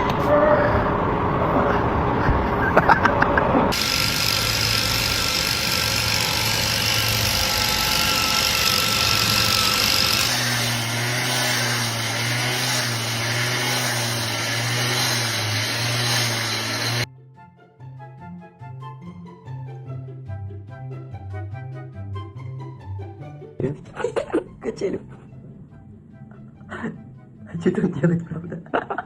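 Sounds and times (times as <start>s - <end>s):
machine engine running: 3.4s - 17.1s.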